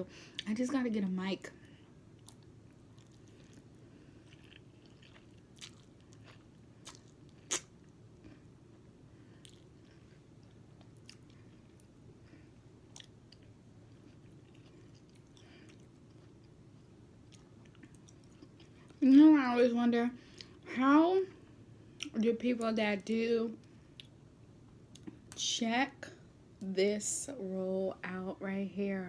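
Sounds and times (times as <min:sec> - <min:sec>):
low room hum: 0:00.0 - 0:29.0
chewing noodles: 0:02.2 - 0:08.4.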